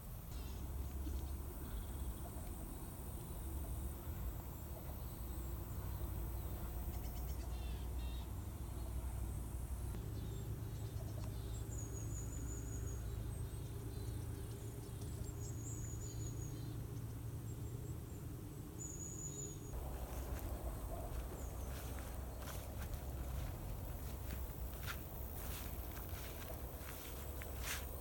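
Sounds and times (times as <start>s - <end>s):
small birds trilling: 18.8s - 28.0s
steady low rumble: 19.7s - 28.0s.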